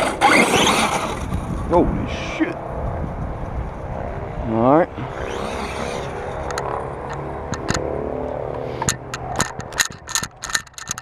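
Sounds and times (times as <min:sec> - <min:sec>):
electric motor hum: 0:04.9 - 0:11.0
sharp clicks and clatters: 0:06.4 - 0:07.8, 0:08.8 - 0:11.0.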